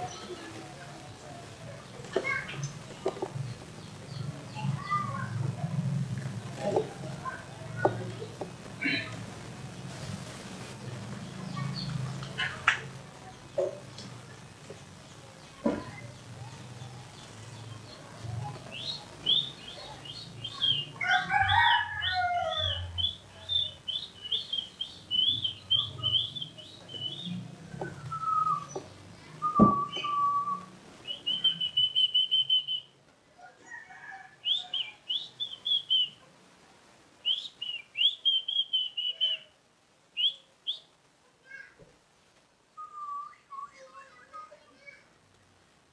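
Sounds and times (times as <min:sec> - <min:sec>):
birds chirping: 0:00.0 - 0:32.9, 0:33.8 - 0:36.2, 0:37.2 - 0:39.6, 0:40.2 - 0:41.0
low bird call: 0:29.4 - 0:32.9.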